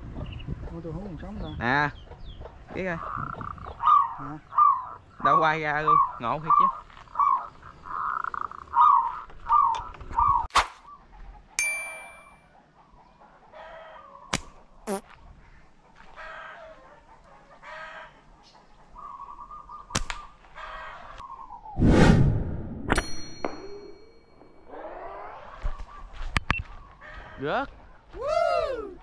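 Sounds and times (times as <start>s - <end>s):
bird calling: 2.0s - 11.2s, 12.8s - 21.8s
ringing metallic ding: 11.6s - 12.4s, 22.9s - 24.6s
sharp snap: 14.3s - 14.6s, 19.9s - 20.3s.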